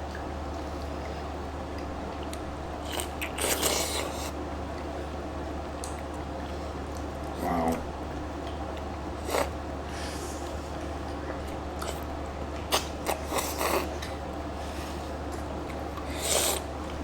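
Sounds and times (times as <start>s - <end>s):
steady low hum: 0.0s - 17.0s
wet slurps and bites of fruit: 2.8s - 4.4s, 12.7s - 14.1s, 16.0s - 16.7s.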